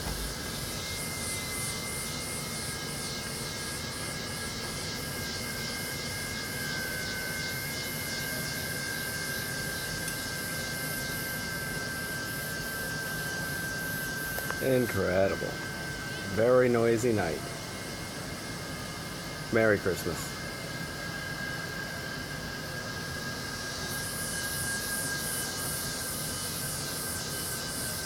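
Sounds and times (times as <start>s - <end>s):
high rhythmic insect chorus: 0.0s - 28.0s
thin high tone: 8.2s - 20.4s.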